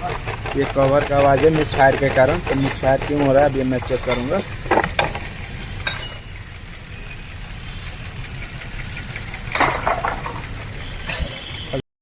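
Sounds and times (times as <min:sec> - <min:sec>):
engine cover rattling: 0:00.0 - 0:06.8, 0:08.3 - 0:11.5
car engine idling roughly: 0:00.0 - 0:11.8
loud clank: 0:09.5 - 0:10.6.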